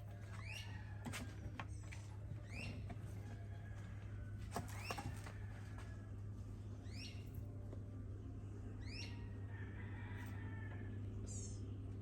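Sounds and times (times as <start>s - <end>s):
steady low hum: 5.5s - 12.0s.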